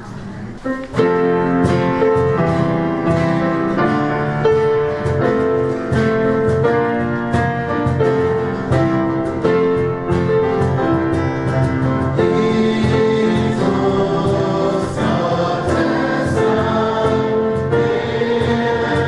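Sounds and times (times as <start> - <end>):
instrumental piano music: 0.0 - 19.0.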